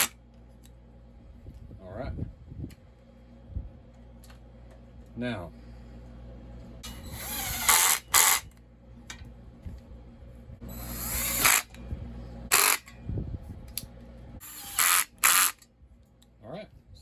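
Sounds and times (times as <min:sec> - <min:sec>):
cordless drill driving screws: 0:06.8 - 0:08.5, 0:10.7 - 0:11.8, 0:12.5 - 0:12.9, 0:14.4 - 0:15.6.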